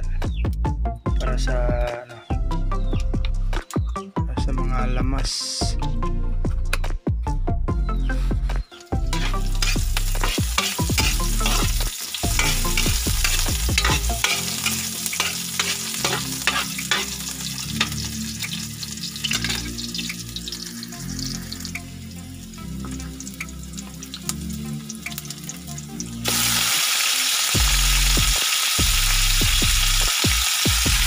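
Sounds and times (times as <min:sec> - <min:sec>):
onions sizzling in a wok: 0:08.8 - 0:31.0
spatula scraping a wok: 0:09.0 - 0:18.1.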